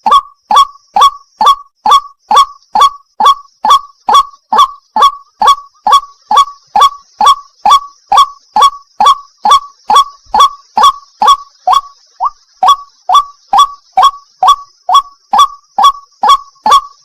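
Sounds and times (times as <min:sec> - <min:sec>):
waterhen calling: 0:00.0 - 0:17.0.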